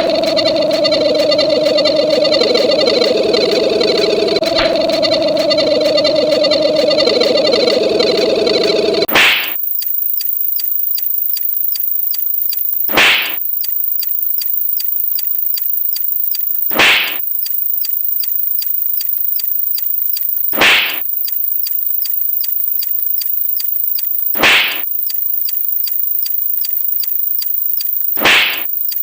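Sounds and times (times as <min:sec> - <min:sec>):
rapid ticking: 0:00.0 - 0:29.0
loud whip-like swish: 0:09.1 - 0:09.5, 0:12.9 - 0:13.4, 0:16.7 - 0:17.2, 0:20.6 - 0:21.0, 0:24.4 - 0:24.8, 0:28.2 - 0:28.6.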